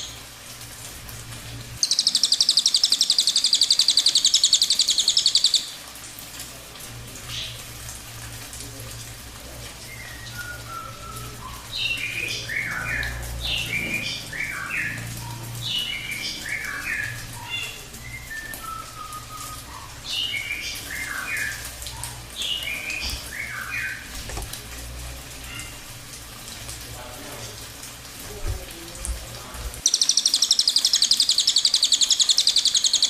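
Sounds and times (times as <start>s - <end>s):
songbird singing whistled notes: 1.8s - 5.8s, 9.8s - 24.1s, 29.8s - 33.0s.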